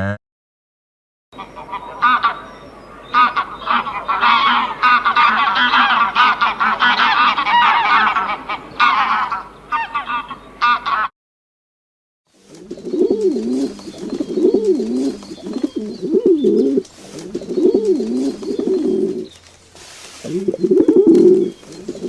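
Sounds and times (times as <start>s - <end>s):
geese honking: 1.4s - 11.1s.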